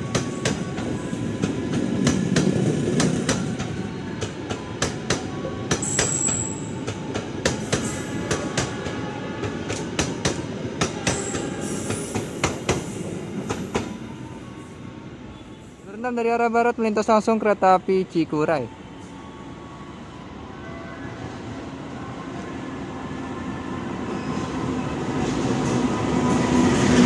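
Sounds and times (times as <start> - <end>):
high wheel squeal: 5.8 - 6.7.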